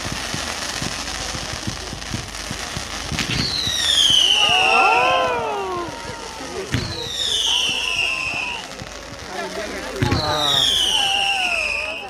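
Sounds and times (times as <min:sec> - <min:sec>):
fireworks bang: 0:00.0 - 0:12.0
fireworks crackling and popping: 0:00.0 - 0:12.0
shrill descending whistles: 0:07.0 - 0:08.6, 0:10.4 - 0:12.0.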